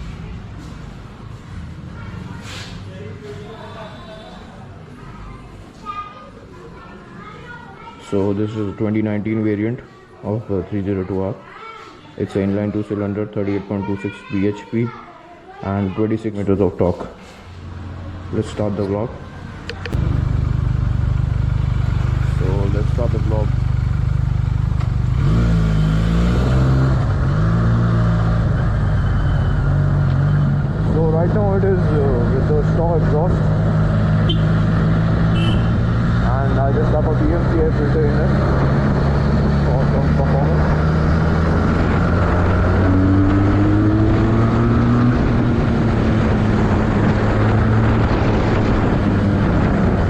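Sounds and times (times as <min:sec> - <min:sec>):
motorcycle engine running: 0:19.8 - 0:27.2, 0:31.6 - 0:36.0
motorcycle engine revving: 0:19.8 - 0:50.0.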